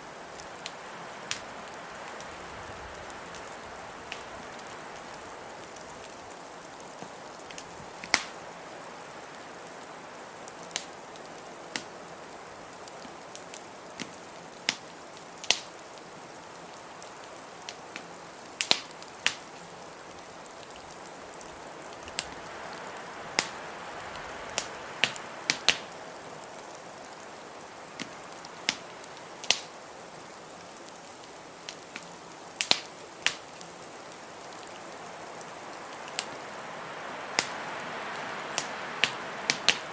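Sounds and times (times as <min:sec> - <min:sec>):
blizzard wind hissing: 0:00.0 - 0:12.7, 0:19.5 - 0:30.3, 0:33.8 - 0:39.9
wood fire crackling and popping: 0:00.2 - 0:39.9.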